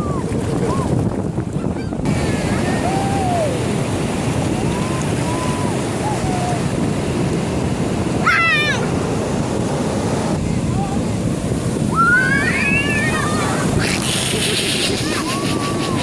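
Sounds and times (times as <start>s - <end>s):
surf breaking on a beach: 0.0s - 16.0s
wind on microphone: 0.0s - 16.0s
high-pitched shout: 8.2s - 8.8s, 11.9s - 13.9s.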